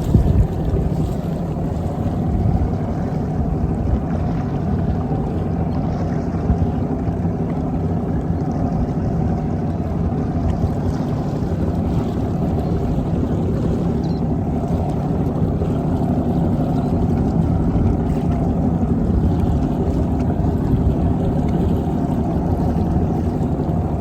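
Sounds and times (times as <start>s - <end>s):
wind noise: 0.0s - 7.4s
boat motor humming: 0.0s - 24.0s
water noise: 0.0s - 24.0s.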